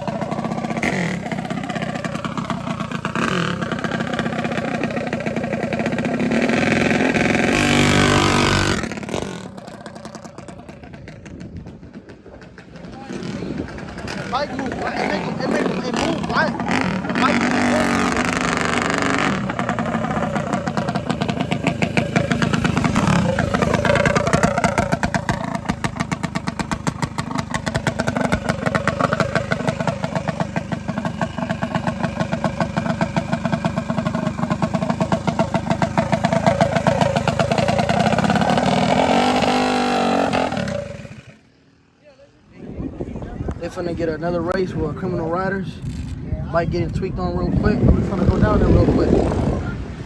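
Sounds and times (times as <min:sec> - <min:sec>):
minibike engine revving: 0:00.0 - 0:41.5, 0:43.7 - 0:50.0.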